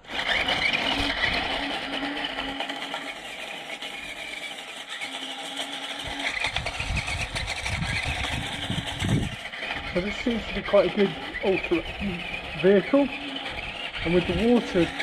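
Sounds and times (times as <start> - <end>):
electric motors whining: 0.0 - 15.0
wheels crunching over gravel: 0.0 - 15.0.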